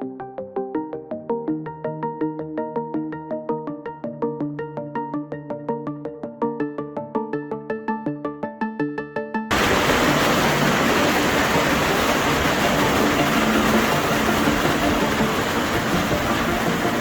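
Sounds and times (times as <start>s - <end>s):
floodwater rushing: 9.5s - 17.0s.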